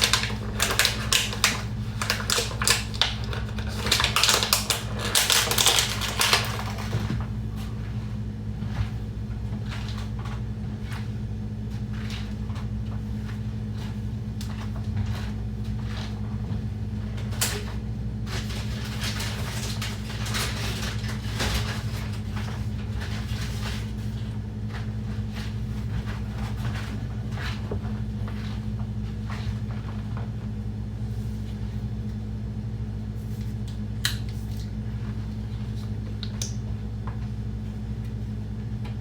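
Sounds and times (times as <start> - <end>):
plastic bottles crinkling: 0.0 - 7.4
steady low hum: 0.0 - 39.0.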